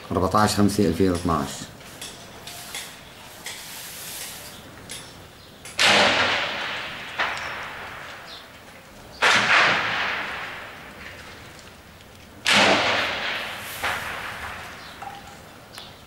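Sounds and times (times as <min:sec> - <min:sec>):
faint gunshot crack: 0:05.8 - 0:08.5, 0:09.2 - 0:11.4, 0:12.4 - 0:15.3
loud gunshots with echo: 0:05.8 - 0:08.5, 0:09.1 - 0:11.6, 0:12.4 - 0:15.7.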